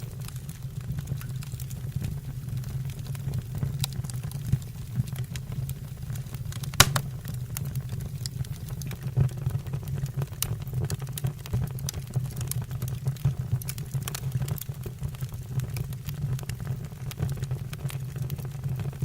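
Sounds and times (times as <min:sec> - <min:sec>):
wood fire crackling: 0:00.0 - 0:09.0
loud snap of fire: 0:06.8 - 0:07.4.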